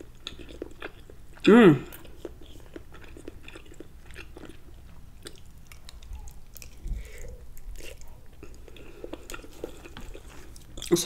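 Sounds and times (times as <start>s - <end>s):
chewing with wet mouth clicks: 0.0s - 11.0s.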